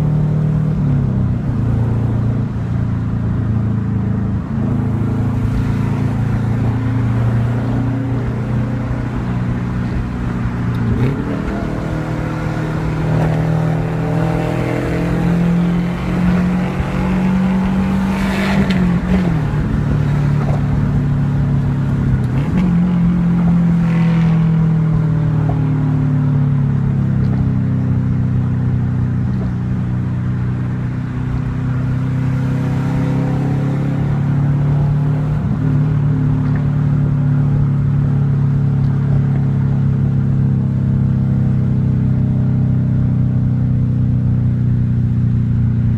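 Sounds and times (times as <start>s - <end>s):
car engine revving through gears: 4.2s - 37.2s.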